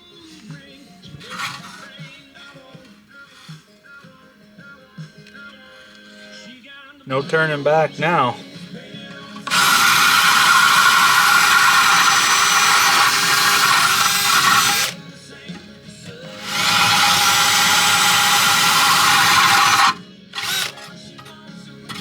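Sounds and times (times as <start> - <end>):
power drill boring into ceramic: 1.2 - 2.0, 9.3 - 15.6, 16.3 - 22.0.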